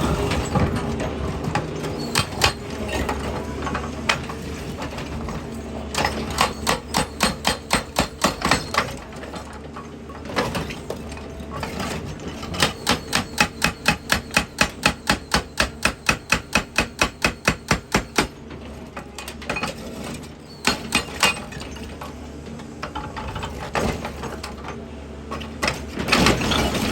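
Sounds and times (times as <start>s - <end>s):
hydraulic breaker hammering rock: 0.0s - 3.5s, 4.1s - 9.5s, 10.3s - 18.5s, 20.5s - 21.8s
excavator engine running: 0.0s - 19.2s.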